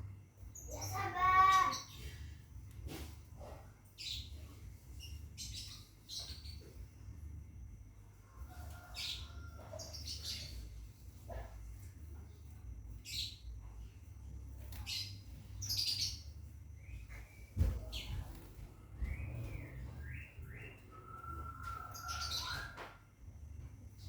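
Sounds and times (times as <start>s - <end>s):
low steady hum: 0.0s - 24.0s
bird chirping: 14.6s - 23.0s.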